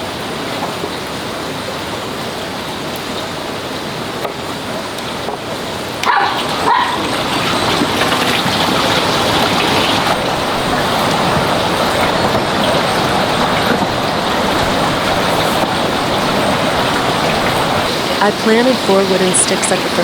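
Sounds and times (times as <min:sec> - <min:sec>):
steady rushing noise: 0:05.2 - 0:20.0
dog barking: 0:06.0 - 0:07.1.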